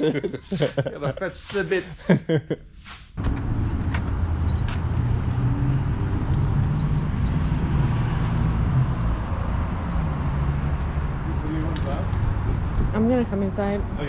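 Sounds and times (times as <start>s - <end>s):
vehicle engine and road rumble: 3.2s - 14.0s.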